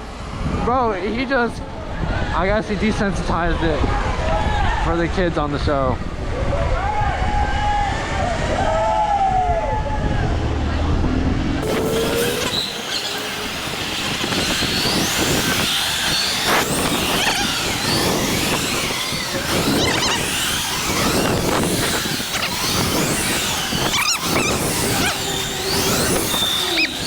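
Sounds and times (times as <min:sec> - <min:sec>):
wind and road noise: 0:00.0 - 0:27.0
electric motors whining: 0:11.6 - 0:27.0.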